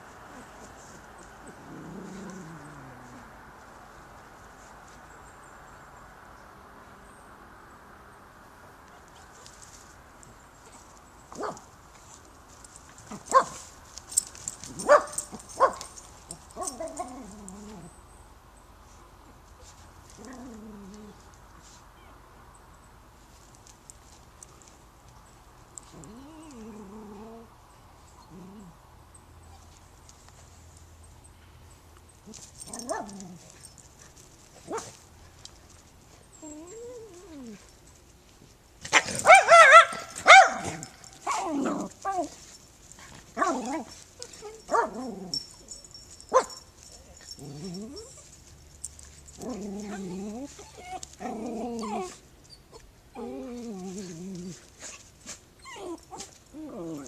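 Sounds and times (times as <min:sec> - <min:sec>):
dog whimpering and whining: 0:36.3 - 0:37.7, 0:47.2 - 0:48.4, 0:49.4 - 0:54.6, 0:55.6 - 0:57.0
dog yapping: 0:38.9 - 0:42.3.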